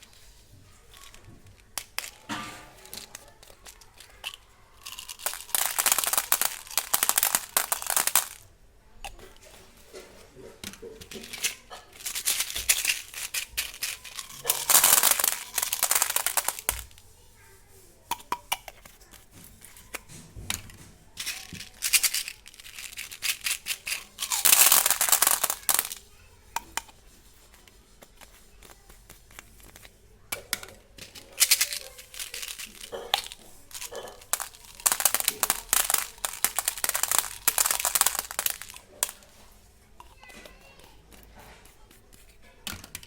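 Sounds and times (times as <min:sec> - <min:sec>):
plastic wrappers crinkling and tearing: 0:00.9 - 0:08.5, 0:10.6 - 0:17.1, 0:18.9 - 0:26.0, 0:27.8 - 0:39.6.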